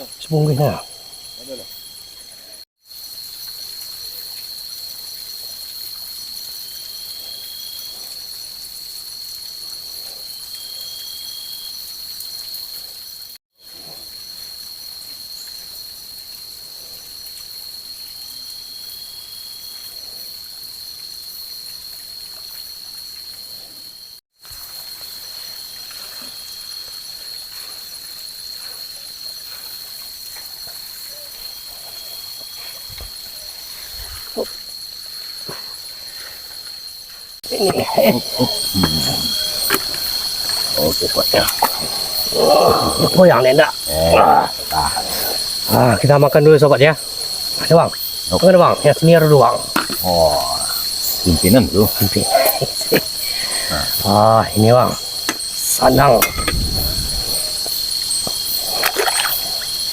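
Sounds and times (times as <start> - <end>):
crickets chirping: 0.0 - 59.9
trickling water: 37.4 - 59.9.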